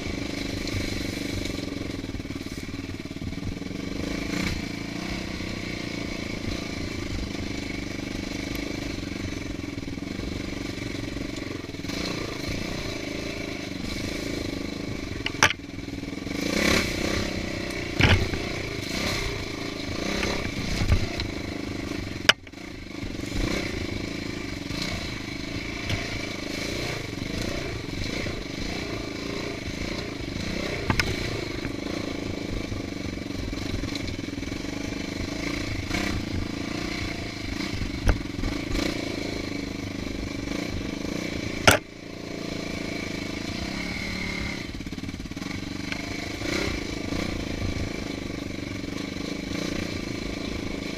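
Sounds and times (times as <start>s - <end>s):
dirt bike engine running: 0.0s - 50.9s
sharp knocks and clatter: 17.9s - 18.6s, 41.6s - 41.9s.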